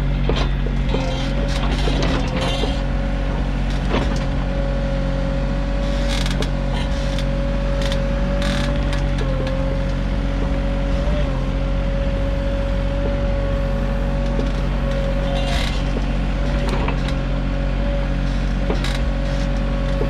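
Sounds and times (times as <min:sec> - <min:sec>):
excavator engine humming: 0:00.0 - 0:20.0
machine clicks and creaks: 0:00.1 - 0:04.4, 0:05.8 - 0:10.6, 0:14.1 - 0:17.4, 0:18.0 - 0:20.0
machine whine: 0:05.7 - 0:20.0.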